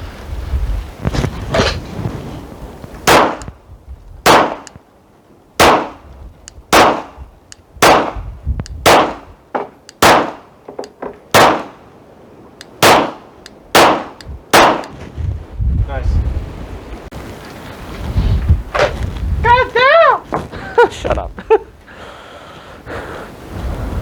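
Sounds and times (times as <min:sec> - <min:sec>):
pistol shots: 0:03.1 - 0:03.5, 0:04.2 - 0:04.8, 0:05.6 - 0:06.0, 0:06.7 - 0:07.2, 0:07.8 - 0:08.2, 0:08.8 - 0:09.3, 0:10.0 - 0:10.5, 0:11.3 - 0:11.8, 0:12.8 - 0:14.9
faint sharp clicks: 0:06.4 - 0:06.6, 0:12.6 - 0:12.8, 0:13.4 - 0:13.6.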